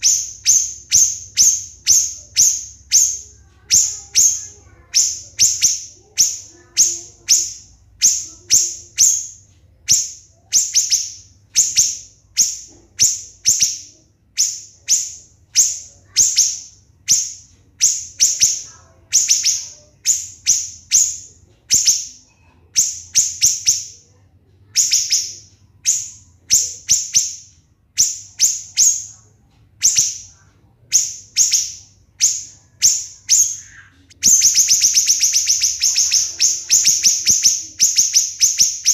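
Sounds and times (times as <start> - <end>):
bird calling shrill notes: 31.0 - 38.9.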